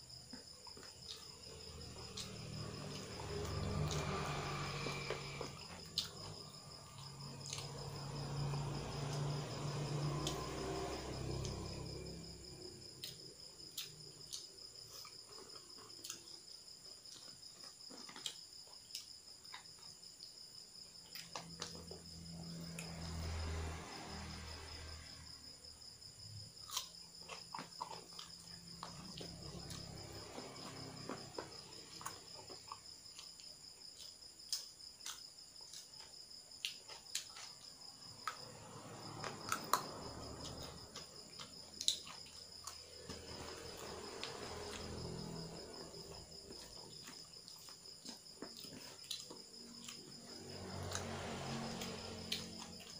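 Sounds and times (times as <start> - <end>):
crickets trilling: 0.0 - 52.9
person chewing food: 0.3 - 12.1, 12.8 - 20.3, 26.6 - 44.9, 45.5 - 50.1.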